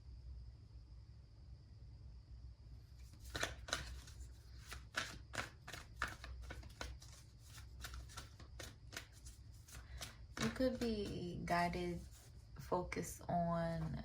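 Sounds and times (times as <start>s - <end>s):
cards shuffling snaps: 3.0s - 12.3s.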